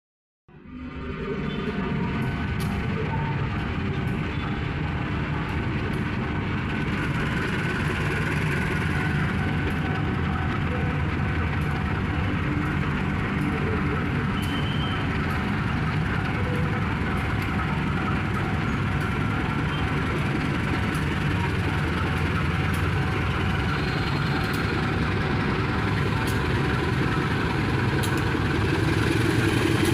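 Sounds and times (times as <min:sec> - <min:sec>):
train rumbling on rails: 0:00.5 - 0:29.9.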